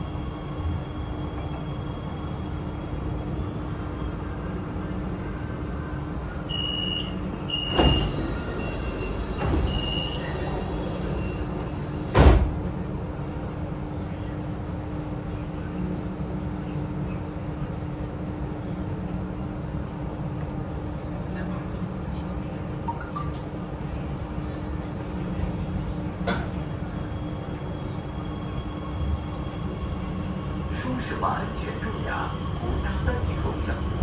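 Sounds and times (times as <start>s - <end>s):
train car running hum: 0.0s - 34.0s.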